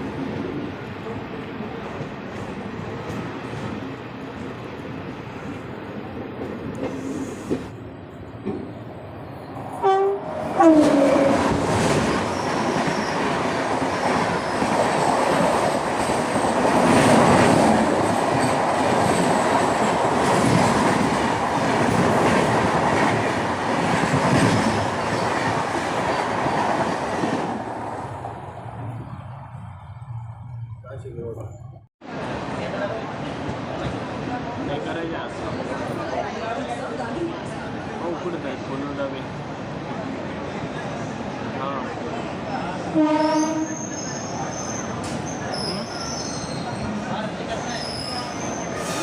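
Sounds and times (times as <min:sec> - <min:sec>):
passing train coaches clattering: 0:00.0 - 0:49.0
train running on rails: 0:00.0 - 0:49.0
train horn: 0:09.8 - 0:11.6, 0:42.9 - 0:43.9.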